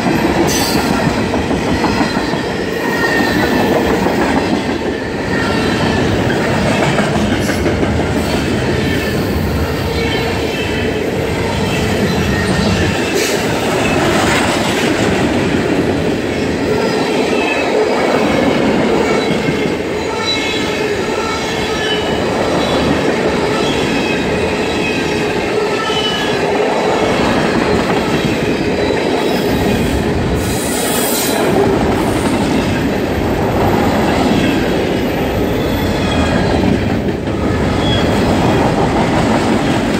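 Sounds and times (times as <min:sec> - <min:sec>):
freight train wheels on rail: 0:00.0 - 0:39.9.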